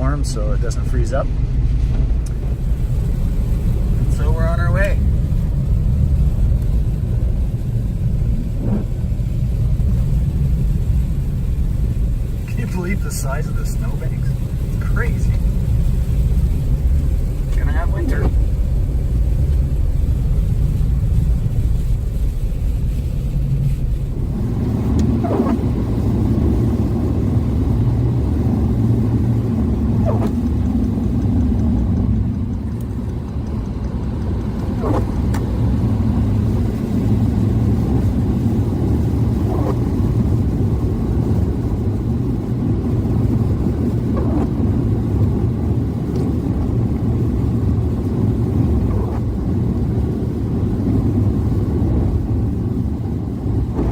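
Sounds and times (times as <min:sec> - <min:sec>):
tyre and road rumble: 0:00.0 - 0:53.9.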